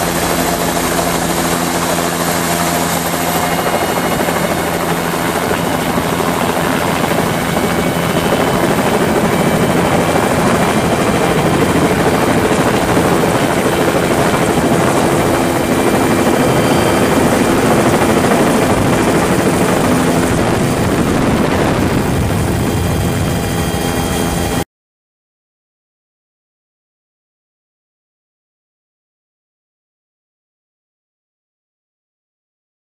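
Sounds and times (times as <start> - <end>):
helicopter turbine and rotor: 0.0 - 24.6.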